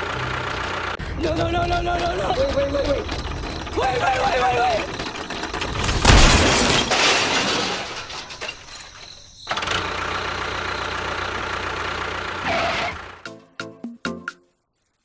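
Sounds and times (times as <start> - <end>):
loud clattering: 0.8 - 9.7.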